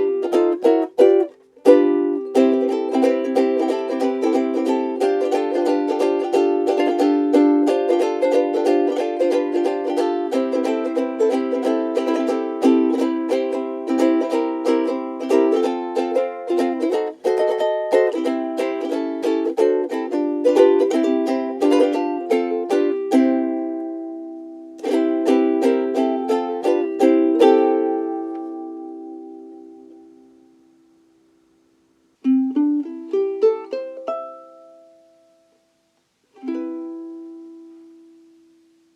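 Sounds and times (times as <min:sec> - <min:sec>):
ukulele chords and notes: 0:00.0 - 0:38.9.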